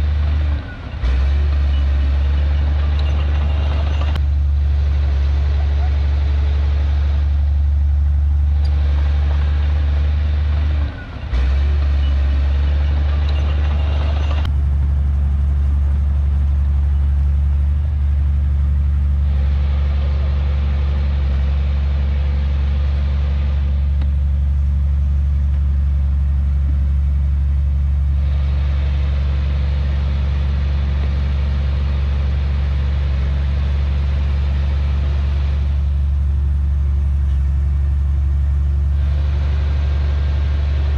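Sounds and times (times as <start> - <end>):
heavy diesel machinery droning: 0.0 - 40.9.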